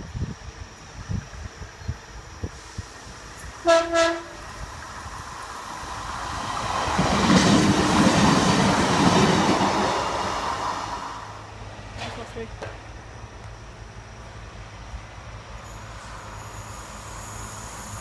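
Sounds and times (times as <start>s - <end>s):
train passing: 0.0s - 18.0s
train horn blasts: 3.6s - 4.4s.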